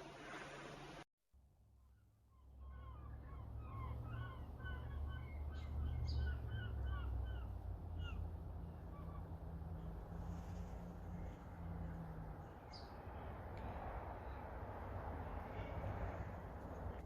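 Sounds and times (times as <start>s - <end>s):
small birds chirping: 2.3s - 13.4s.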